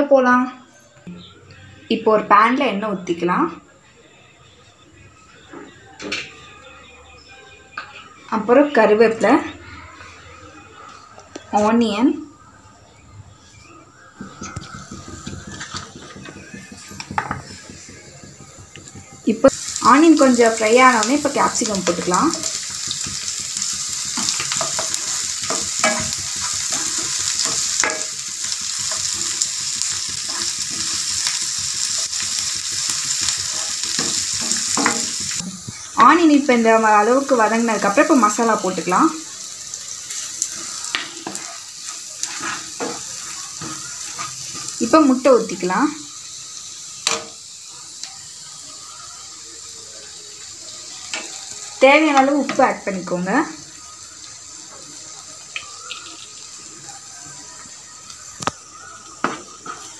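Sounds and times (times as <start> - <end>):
onion and pepper sizzling in oil: 11.0 - 59.9
spatula scraping and tapping pan: 14.2 - 19.5, 21.6 - 36.2, 40.1 - 45.0, 59.2 - 59.9.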